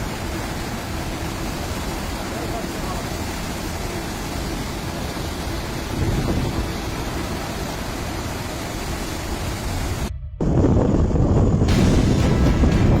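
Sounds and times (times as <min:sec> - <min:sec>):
rough sea: 0:00.0 - 0:10.1, 0:11.3 - 0:13.0
wind rushing: 0:08.4 - 0:13.0.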